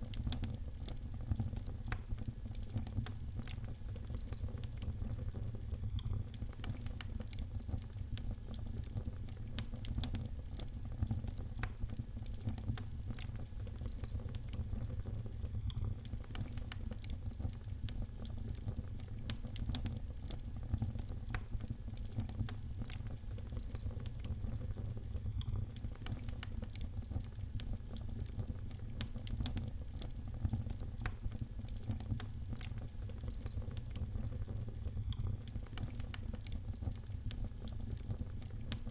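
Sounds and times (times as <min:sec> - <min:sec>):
fire pops and snaps: 0:00.0 - 0:38.9
low rumble of fire: 0:00.0 - 0:38.9.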